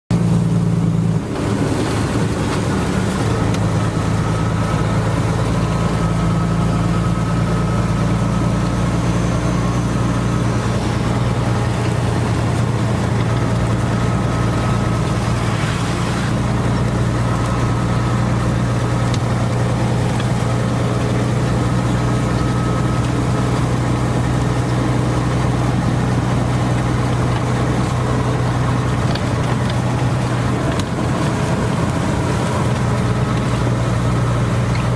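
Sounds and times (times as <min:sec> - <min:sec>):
low engine hum: 0:00.1 - 0:34.9
steady rain: 0:01.3 - 0:04.9.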